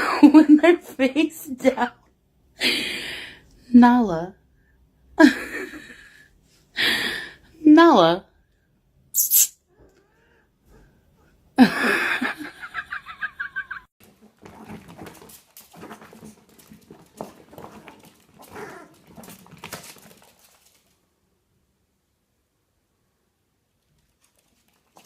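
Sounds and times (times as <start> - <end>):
animal grumbling: 17.6 - 19.0.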